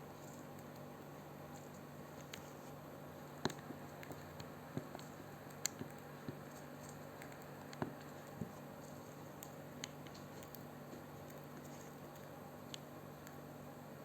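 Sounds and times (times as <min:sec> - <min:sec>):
parrot beak clicks and taps: 0:03.4 - 0:06.4.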